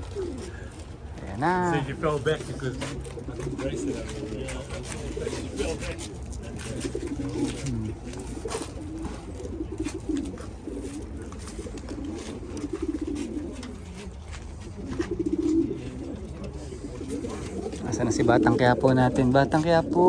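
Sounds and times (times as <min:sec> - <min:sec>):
birds clicking and tapping in crates: 0:00.0 - 0:20.0
pigeons cooing: 0:00.0 - 0:20.0.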